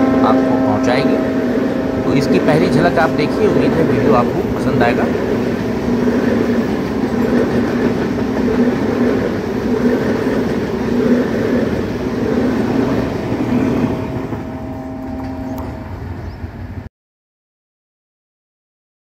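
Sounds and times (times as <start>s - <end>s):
train wheels rumbling on track: 0.0s - 16.9s.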